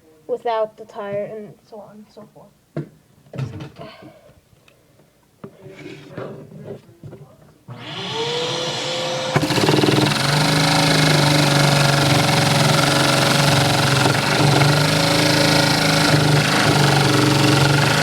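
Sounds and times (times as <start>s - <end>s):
vacuum cleaner motor: 7.7s - 18.0s
toy piston engine running fast: 9.4s - 18.0s.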